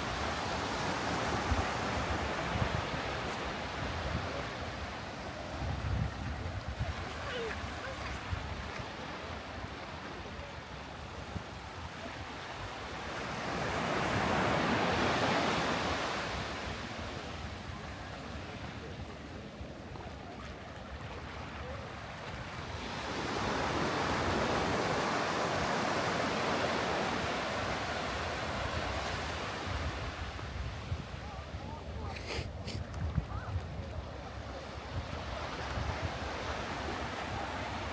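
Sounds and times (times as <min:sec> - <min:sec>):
waves breaking on beach: 0:00.0 - 0:37.9
wind rumbling on microphone: 0:01.1 - 0:09.0, 0:28.6 - 0:37.9.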